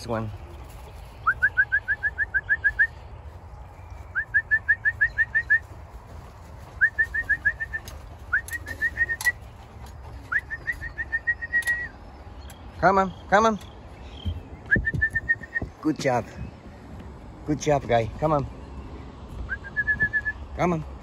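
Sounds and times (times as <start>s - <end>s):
whistled rising chirps: 1.2s - 3.0s, 3.9s - 5.7s, 6.8s - 9.4s, 10.3s - 12.0s, 14.6s - 15.8s, 19.4s - 20.5s
sharp clicks: 11.4s - 12.7s.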